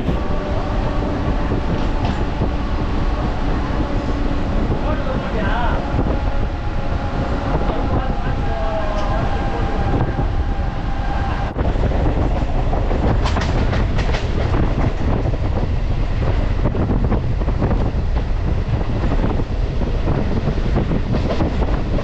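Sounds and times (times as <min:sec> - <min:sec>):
train wheels rumbling on rail: 0:00.0 - 0:22.0
clacking over rail joints: 0:01.2 - 0:05.4, 0:11.8 - 0:15.5, 0:20.1 - 0:22.0.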